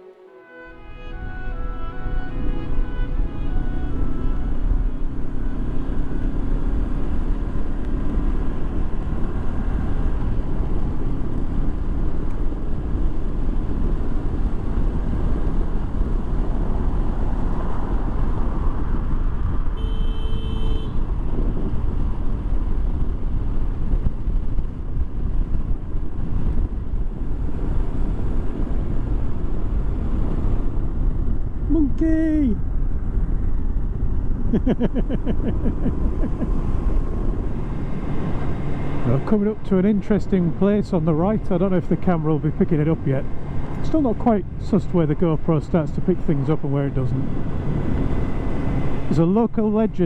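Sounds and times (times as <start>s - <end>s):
motorcycle engine drone: 0.0s - 50.0s
wind rush: 0.7s - 19.8s, 20.9s - 44.6s, 47.2s - 49.2s.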